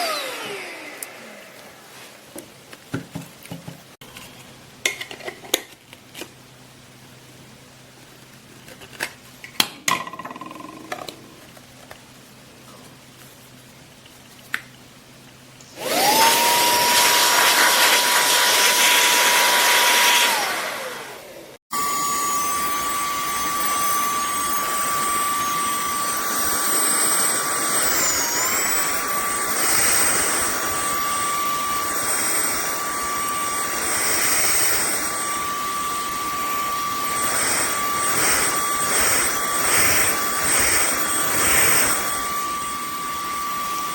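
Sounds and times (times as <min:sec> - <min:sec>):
handheld vacuum cleaner whine: 0:00.0 - 0:01.9, 0:15.6 - 0:43.9.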